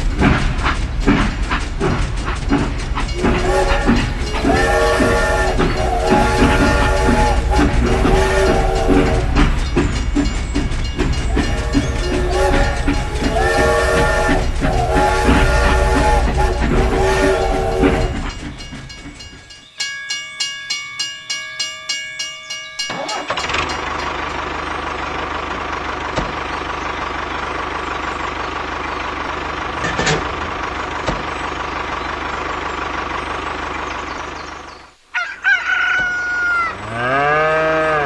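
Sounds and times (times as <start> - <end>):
engine running steadily: 0.0 - 18.3, 23.3 - 34.8
quick bell-like rings: 18.2 - 24.3
rooster crowing: 35.1 - 38.0.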